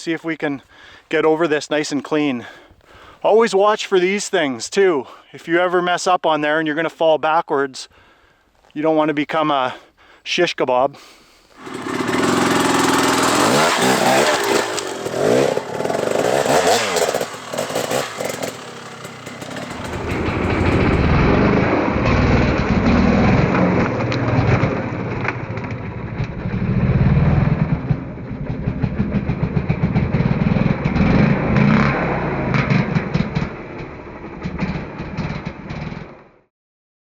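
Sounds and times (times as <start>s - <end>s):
sharp knocks and clatter: 11.6s - 26.6s, 32.5s - 36.2s
dirt bike engine revving: 11.6s - 28.0s, 28.6s - 33.6s.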